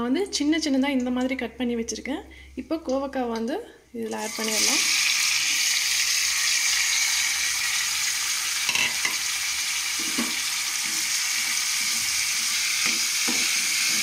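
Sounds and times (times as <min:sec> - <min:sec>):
vegetables sizzling in hot oil: 0:04.1 - 0:14.0.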